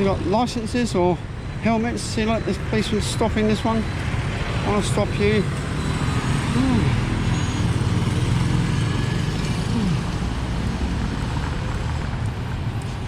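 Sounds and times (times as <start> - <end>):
motorcycle engines passing: 0.0 - 12.5
car engines passing: 0.0 - 13.0.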